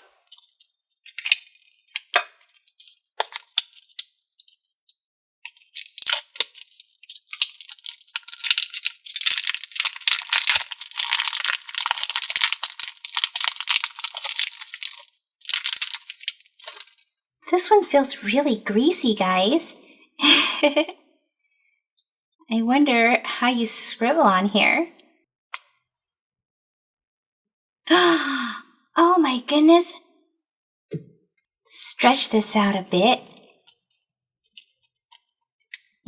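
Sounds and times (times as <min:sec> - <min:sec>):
packaging crackling and rattling: 0:01.2 - 0:04.8, 0:05.5 - 0:17.1.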